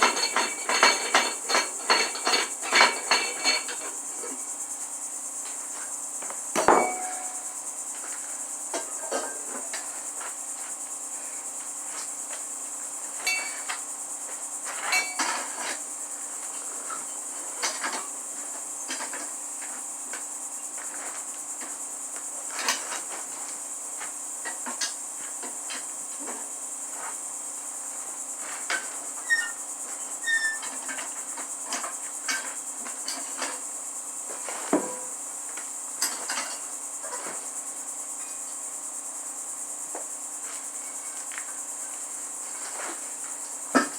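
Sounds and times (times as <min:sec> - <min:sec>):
tools clinking on metal: 0:00.0 - 0:03.9, 0:06.6 - 0:07.5, 0:13.2 - 0:13.8, 0:14.8 - 0:15.6
crickets chirring: 0:00.0 - 0:43.9.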